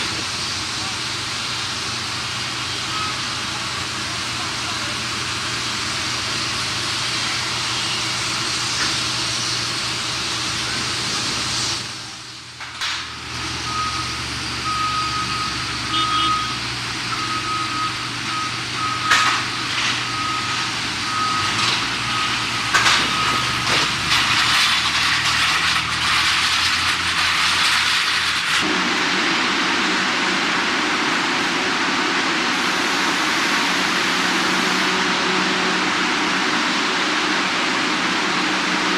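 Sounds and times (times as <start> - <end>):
reversing alarm beeping: 2.7 - 3.5, 13.1 - 23.9
aircraft engines rushing: 16.6 - 38.9.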